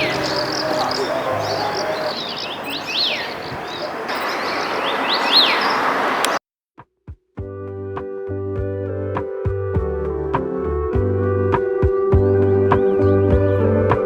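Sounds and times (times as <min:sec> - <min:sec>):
soft keyboard music: 0:00.0 - 0:05.5, 0:07.4 - 0:14.0
birds singing in chorus: 0:00.0 - 0:06.4.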